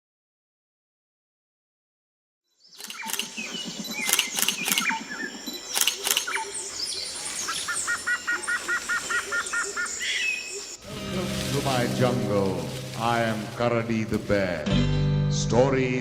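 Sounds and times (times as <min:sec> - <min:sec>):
birds chirping and calling: 0:02.7 - 0:14.3
repeated two-note bird calls: 0:02.8 - 0:06.7.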